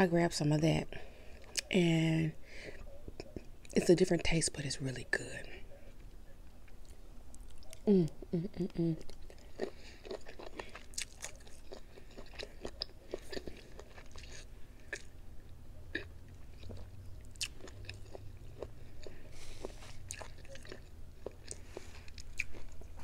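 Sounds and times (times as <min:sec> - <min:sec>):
faint low hum: 0:00.0 - 0:23.0
chewing and mouth smacks: 0:06.0 - 0:07.9, 0:09.0 - 0:15.2, 0:15.9 - 0:23.0.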